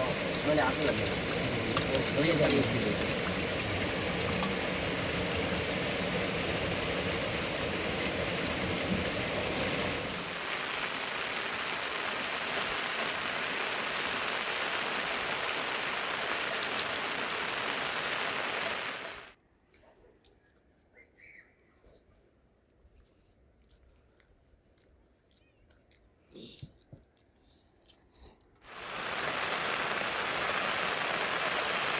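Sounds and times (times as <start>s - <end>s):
rain falling: 0.0s - 19.4s, 28.7s - 31.9s.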